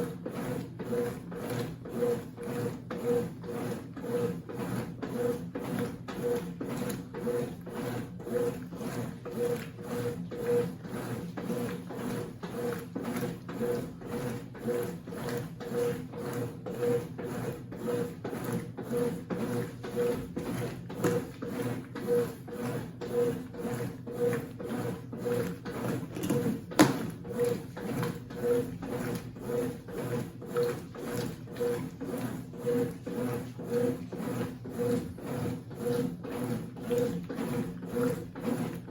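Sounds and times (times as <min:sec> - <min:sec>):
washing machine churning: 0:00.0 - 0:38.9.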